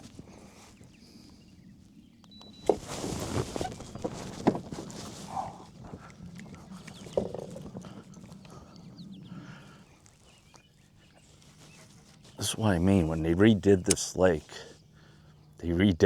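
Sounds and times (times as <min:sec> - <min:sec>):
rustling and scraping: 0:02.5 - 0:08.5, 0:11.1 - 0:13.0.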